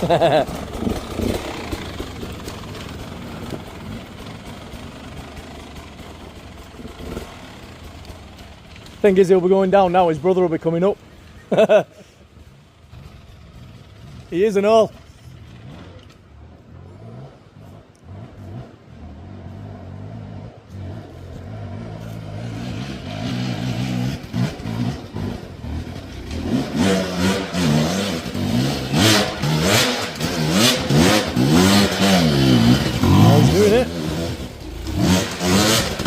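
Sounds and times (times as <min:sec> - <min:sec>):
dirt bike engine revving: 0:00.0 - 0:09.2, 0:16.9 - 0:36.0.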